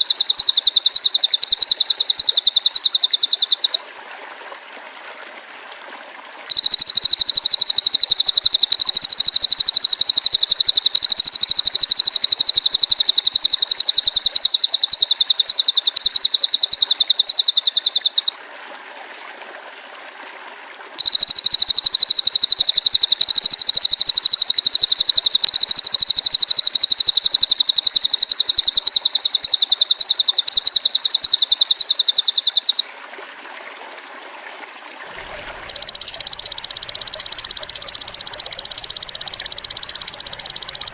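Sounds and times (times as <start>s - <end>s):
bird buzzing trill: 0.0s - 3.8s, 6.5s - 18.3s, 21.0s - 32.8s, 35.6s - 40.9s.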